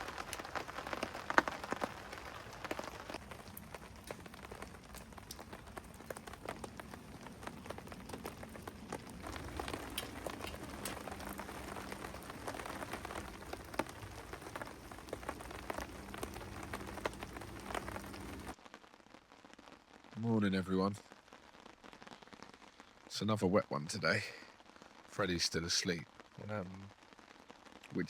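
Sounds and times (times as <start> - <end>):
sharp raindrop hits: 0.0 - 18.7
steady rain falling: 0.0 - 28.0.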